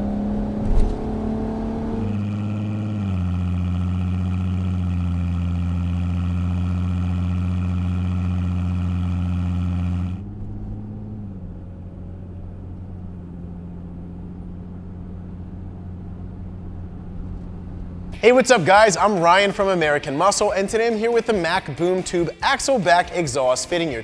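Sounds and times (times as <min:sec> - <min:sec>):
muffled engine sound: 0:00.0 - 0:18.2
loud car exhaust note: 0:00.0 - 0:19.4.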